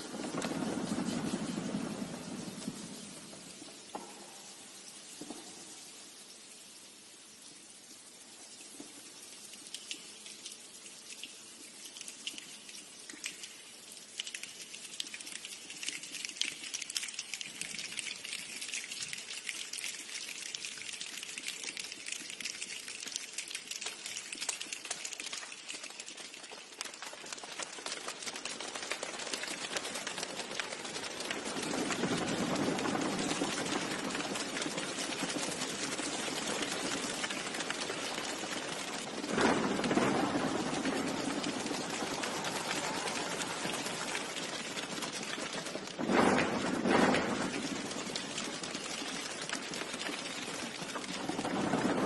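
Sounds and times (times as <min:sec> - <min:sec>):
hands imitating rain: 0:41.4 - 0:44.4.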